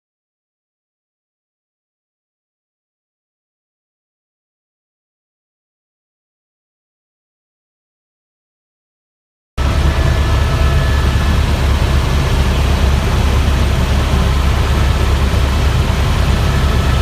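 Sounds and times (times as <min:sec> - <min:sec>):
faint whining tones: 0:09.6 - 0:17.0
helicopter engine and rotor: 0:09.6 - 0:17.0.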